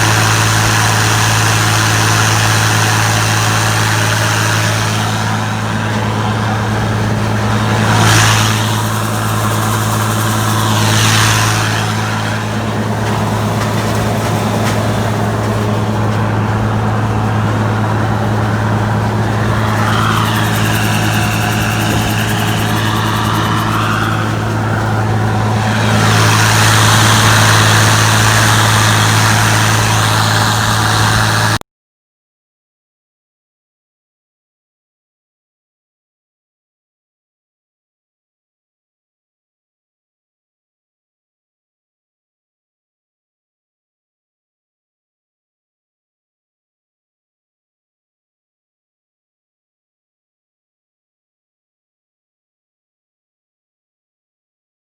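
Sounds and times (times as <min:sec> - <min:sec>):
farm vehicle engine humming: 0:00.0 - 0:31.6.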